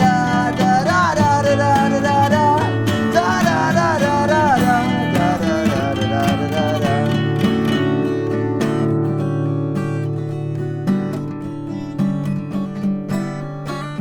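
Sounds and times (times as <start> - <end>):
person singing wordless melody: 0.0 - 8.2
acoustic guitar strummed: 0.0 - 14.0.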